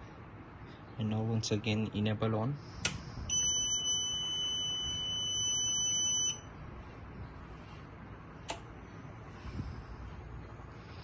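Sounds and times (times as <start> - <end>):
high-pitched buzzer beep: 3.3 - 6.5
sharp click: 8.4 - 8.7.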